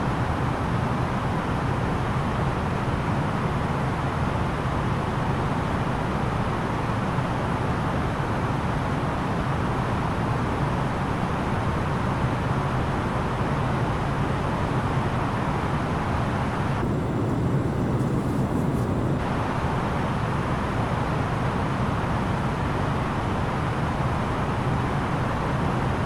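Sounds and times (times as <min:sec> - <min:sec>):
low engine hum: 0:10.8 - 0:26.0
rush of airflow: 0:16.8 - 0:20.0.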